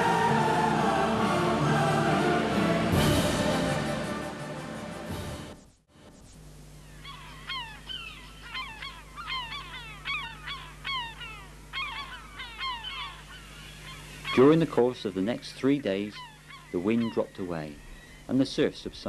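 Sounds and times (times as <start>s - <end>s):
steady low hum: 0.0s - 19.0s
birds calling: 6.8s - 19.0s.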